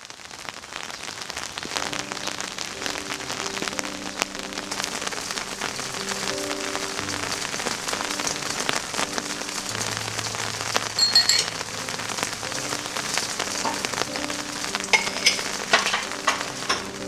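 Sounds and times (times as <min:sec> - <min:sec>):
rain pattering: 0:00.0 - 0:17.0
ringing clink: 0:11.0 - 0:11.5.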